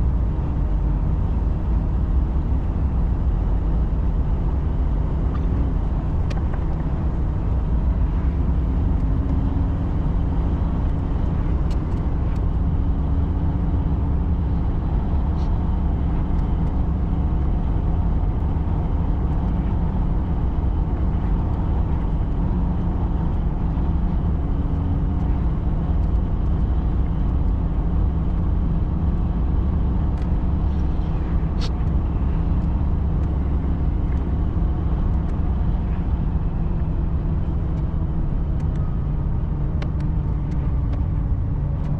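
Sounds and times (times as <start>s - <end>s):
truck engine and road rumble: 0.0s - 41.9s
faint clicks: 38.6s - 38.9s.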